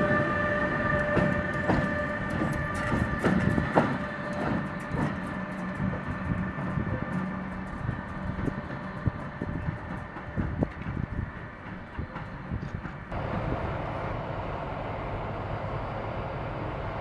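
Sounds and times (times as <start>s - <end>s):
train wheels knocking on rail joints: 0.0s - 13.5s
steady train whine: 0.0s - 17.0s.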